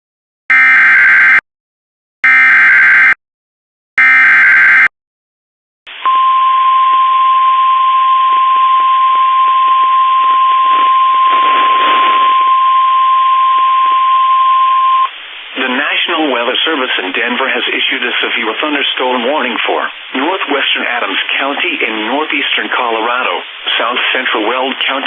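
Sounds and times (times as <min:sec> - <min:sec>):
warning alarm tone: 0:00.5 - 0:01.4, 0:02.2 - 0:03.2, 0:04.0 - 0:04.9, 0:06.0 - 0:15.1
radio hiss: 0:10.3 - 0:13.0, 0:15.0 - 0:25.0.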